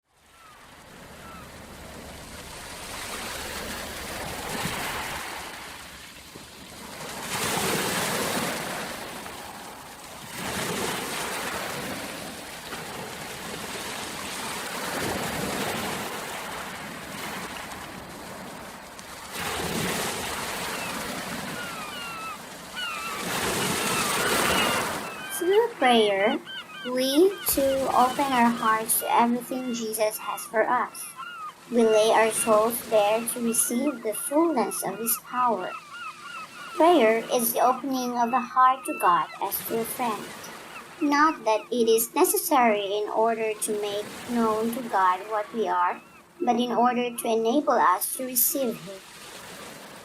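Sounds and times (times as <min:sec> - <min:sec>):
waves washing onto shore: 0:00.1 - 0:41.4, 0:48.6 - 0:50.0
faint bird chirps: 0:20.7 - 0:25.6, 0:26.3 - 0:31.7, 0:32.3 - 0:41.7.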